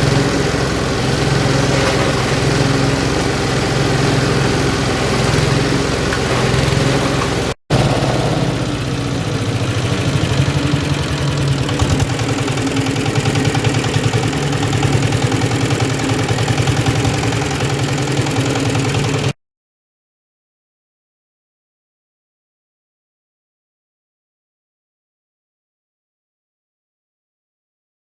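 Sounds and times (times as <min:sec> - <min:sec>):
chopper machine motor humming: 0:00.0 - 0:19.4.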